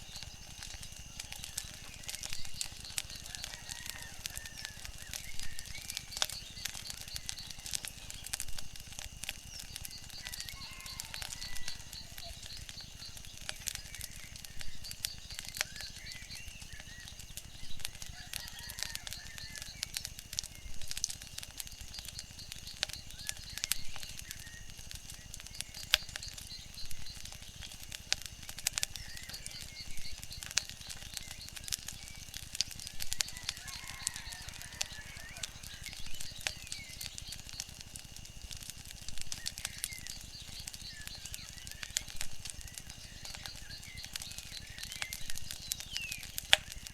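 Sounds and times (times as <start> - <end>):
wood fire crackling: 0.0 - 46.9
faint bird chirps: 9.4 - 21.0, 21.8 - 37.9, 39.1 - 46.9.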